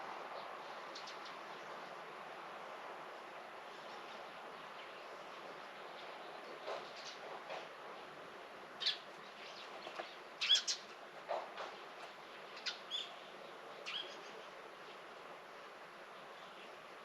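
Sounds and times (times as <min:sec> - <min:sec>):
faint background hiss: 0:00.0 - 0:17.0
small birds chirping: 0:08.8 - 0:10.9.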